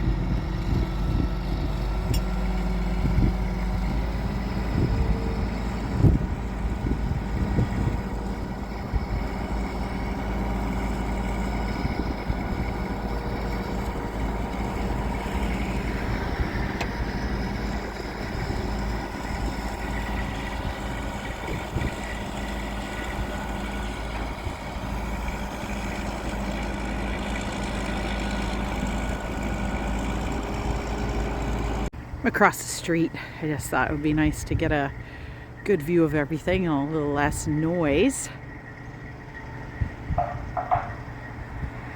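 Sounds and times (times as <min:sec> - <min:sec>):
diesel engine droning: 0:00.0 - 0:41.9.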